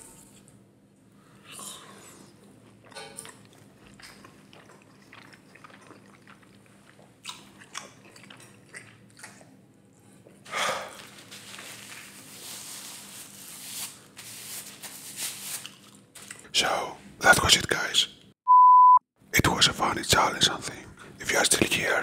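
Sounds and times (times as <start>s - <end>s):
wet chewing and lip-smacking: 2.4s - 10.4s
paper napkin rustling: 10.9s - 16.3s.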